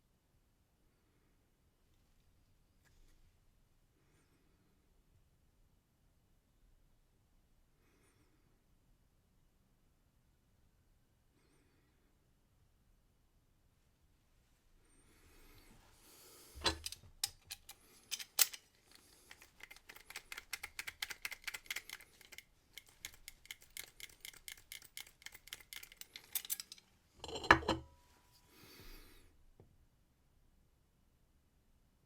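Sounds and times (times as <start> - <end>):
metal clicks and scrapes in lock: 16.5 - 27.8
key being filed: 16.6 - 26.8.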